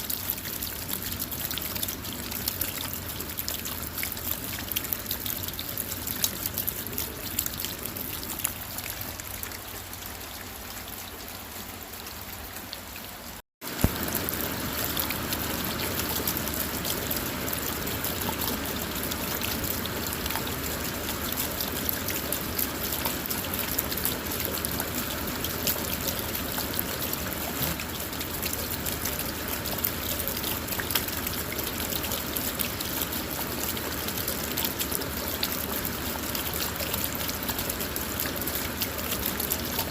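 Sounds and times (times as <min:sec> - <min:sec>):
rain on a car: 0:00.0 - 0:39.9
raindrops ticking: 0:00.0 - 0:39.9.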